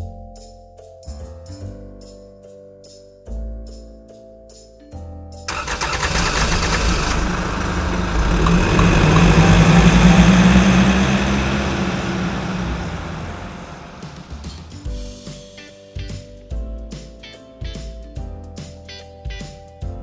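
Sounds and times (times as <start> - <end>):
motor humming: 6.1 - 14.4.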